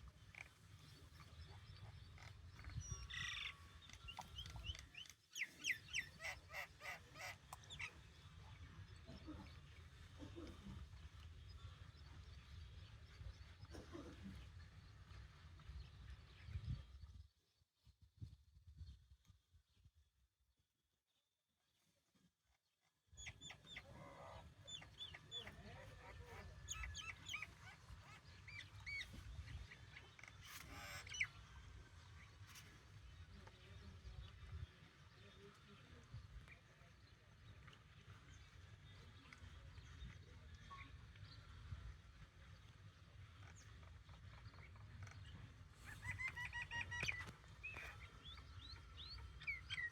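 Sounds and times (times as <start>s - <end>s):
faint bird calls: 43.4s - 49.9s.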